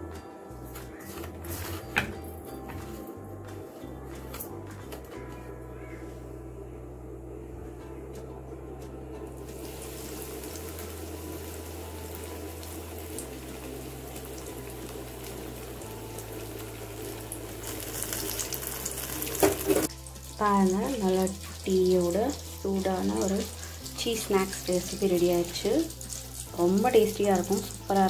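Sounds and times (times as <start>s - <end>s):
deep-frying oil sizzling: 9.4s - 28.0s.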